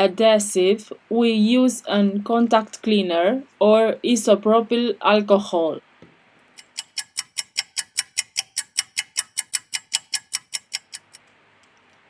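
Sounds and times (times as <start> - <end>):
rapid ringing ticks: 6.6 - 11.2.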